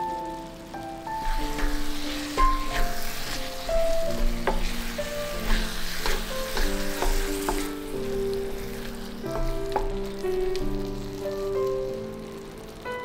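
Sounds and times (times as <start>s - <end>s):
meat sauce sizzling in skillet: 0.0s - 13.0s
spatula knocking on pan: 1.2s - 10.7s
spatula stirring and scraping: 1.2s - 11.8s.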